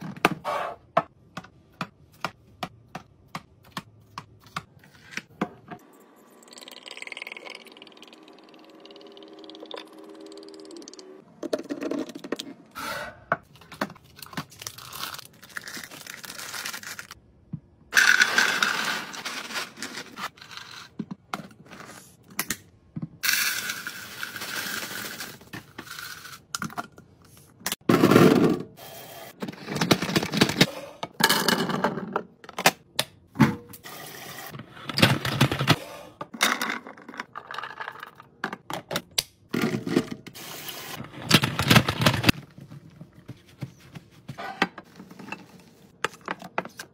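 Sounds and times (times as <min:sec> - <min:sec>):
packaging rustling and tearing: 0:14.0 - 0:17.2.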